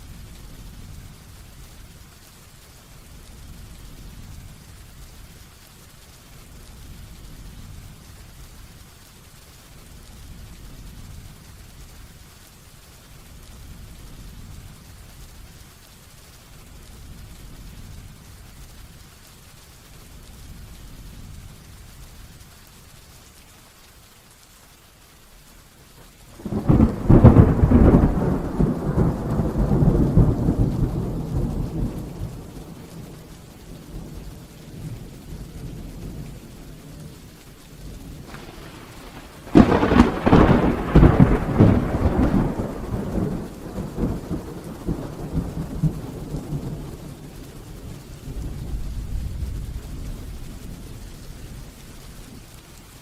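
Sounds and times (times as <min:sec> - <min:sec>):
steady rain: 0:00.0 - 0:53.0
thunder rumbling: 0:26.3 - 0:52.5
sharp thunder crack: 0:26.4 - 0:33.1, 0:38.2 - 0:46.9.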